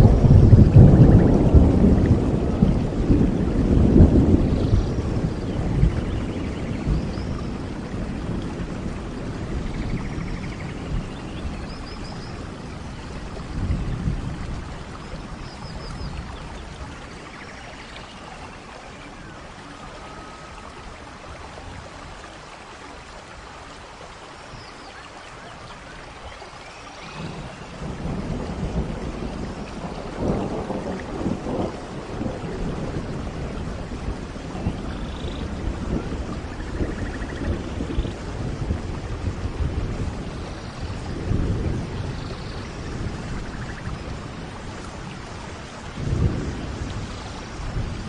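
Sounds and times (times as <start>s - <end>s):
rolling thunder: 0.0s - 17.3s, 27.0s - 48.0s
steady rain: 0.0s - 48.0s.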